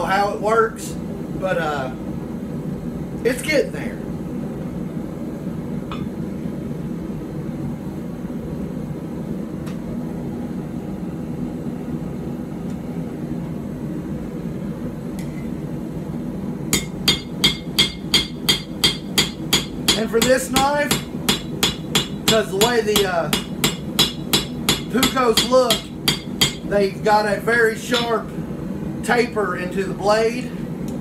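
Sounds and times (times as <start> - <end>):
hammer striking steel on anvil: 5.9 - 6.1, 16.8 - 26.7, 28.0 - 28.2.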